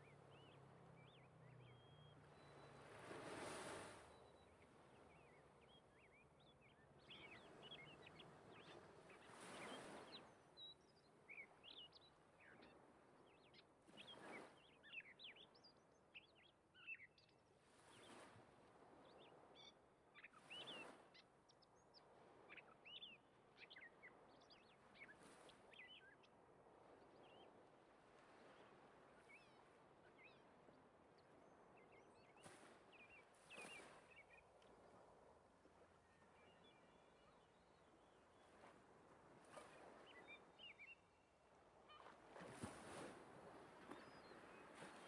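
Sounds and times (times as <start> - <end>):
birds chirping and twittering: 0.0 - 3.2, 4.1 - 18.2, 19.0 - 26.3, 28.5 - 35.0, 39.5 - 42.2, 43.8 - 45.0.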